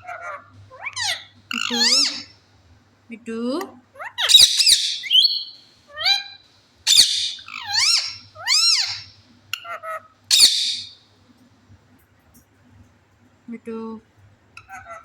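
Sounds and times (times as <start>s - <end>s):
parrot squawking and whistling: 0.0s - 2.3s, 4.0s - 11.0s.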